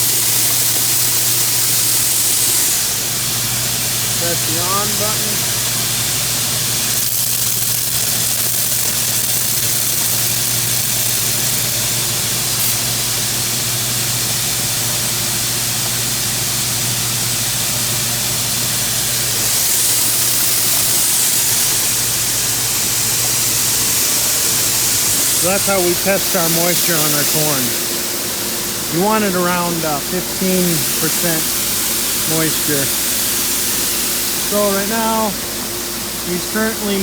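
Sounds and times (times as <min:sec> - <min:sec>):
machinery rushing hiss: 0:00.0 - 0:37.0.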